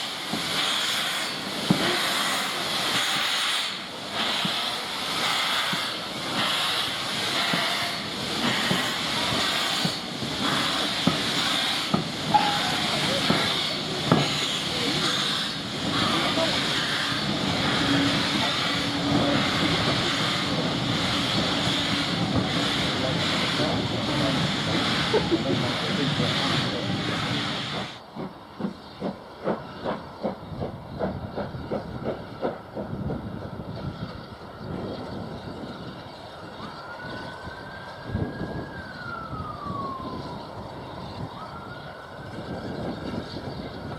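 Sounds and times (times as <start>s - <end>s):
steam locomotive hissing: 0.0s - 34.4s.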